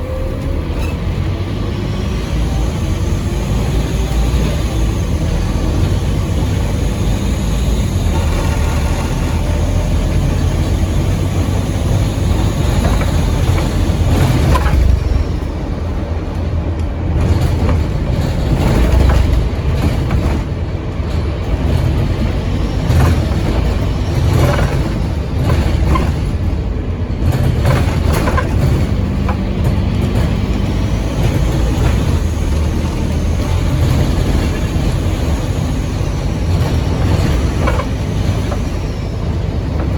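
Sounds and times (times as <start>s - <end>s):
bus engine low rumble: 0.0s - 39.9s
bus body knocks and rattles: 3.4s - 39.9s.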